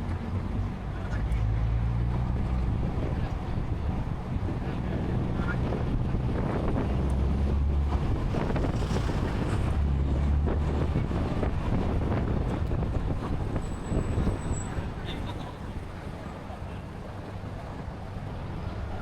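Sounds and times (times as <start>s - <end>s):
car engines and road noise: 0.0s - 19.0s
wind buffeting microphone: 2.2s - 16.2s.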